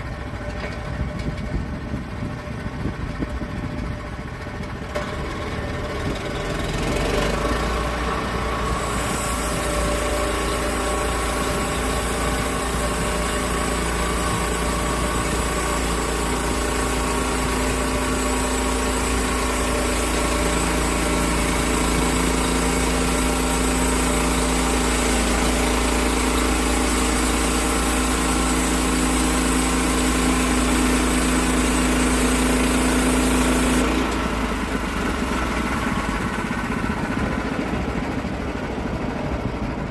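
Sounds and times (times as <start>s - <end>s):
sawmill engine running: 0.0s - 39.9s
blade hissing through wood: 7.0s - 34.2s.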